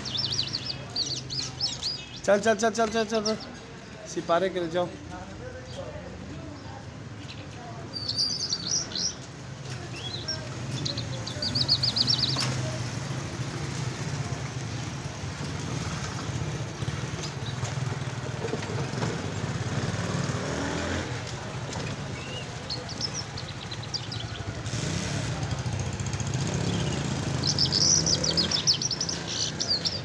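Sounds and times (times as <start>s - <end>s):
bird chirping: 0.0s - 4.8s, 5.6s - 13.0s, 21.7s - 24.6s, 25.9s - 30.0s.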